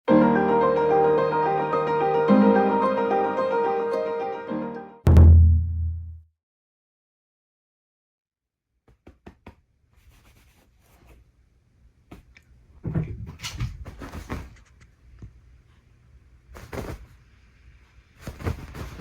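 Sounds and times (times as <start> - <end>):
kitten scrabbling on duvet: 13.4 - 14.9, 16.5 - 17.2, 18.1 - 19.0.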